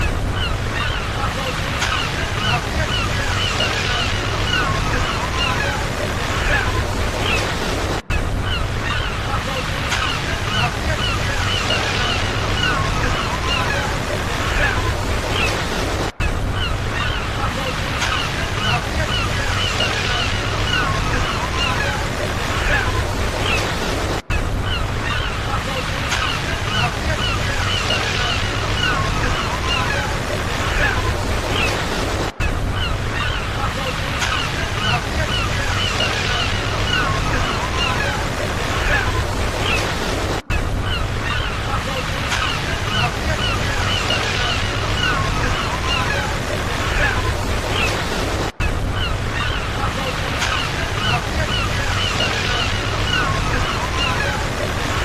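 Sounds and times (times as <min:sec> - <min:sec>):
flock of birds calling: 0:00.0 - 0:55.0
ocean surf washing: 0:00.0 - 0:55.0
wind: 0:00.0 - 0:55.0.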